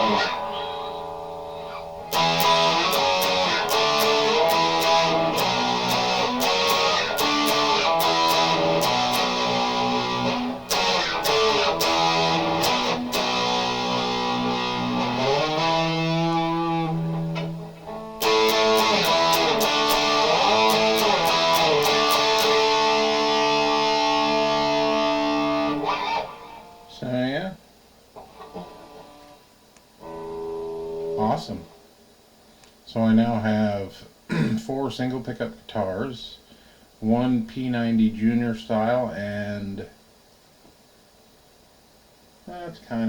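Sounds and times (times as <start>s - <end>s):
electric guitar strumming chords: 0.0s - 27.0s, 30.0s - 31.8s.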